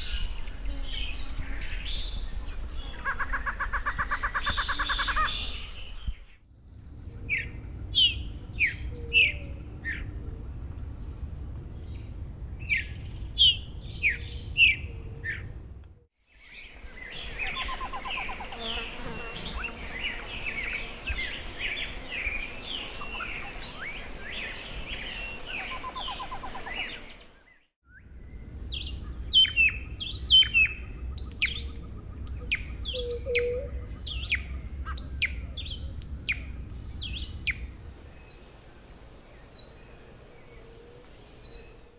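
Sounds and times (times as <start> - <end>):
chorus of birds chirping: 0.0 - 6.4, 16.5 - 27.6.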